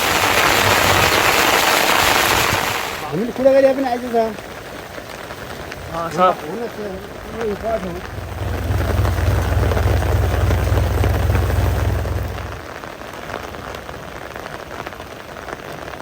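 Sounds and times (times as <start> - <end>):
rain pattering: 0.0 - 16.0
low rumble: 7.1 - 12.7.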